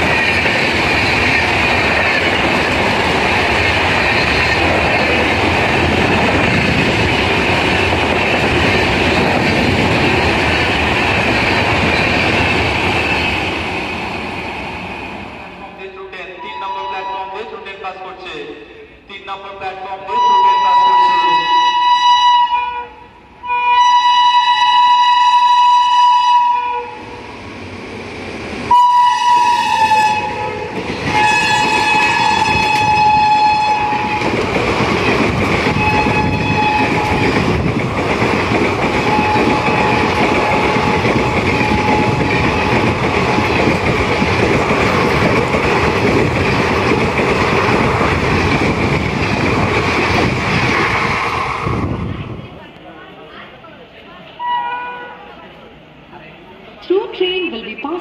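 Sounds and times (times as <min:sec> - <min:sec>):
coaches rumbling and clattering: 0:00.0 - 0:13.6, 0:33.9 - 0:52.6
locomotive horn blasts: 0:20.1 - 0:27.0, 0:28.7 - 0:34.2, 0:35.8 - 0:37.3, 0:39.0 - 0:42.8, 0:54.4 - 0:55.2.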